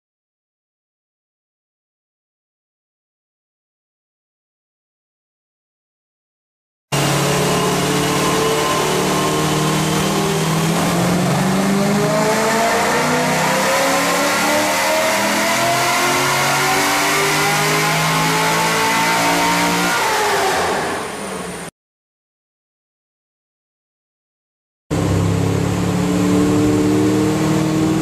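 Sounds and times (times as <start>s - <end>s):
car engine revving at full throttle: 6.9s - 21.7s, 24.9s - 28.0s.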